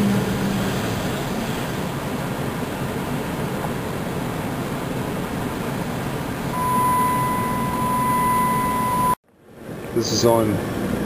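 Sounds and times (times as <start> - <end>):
car road and engine noise: 0.0 - 11.0
high-pitched beep: 6.6 - 9.2.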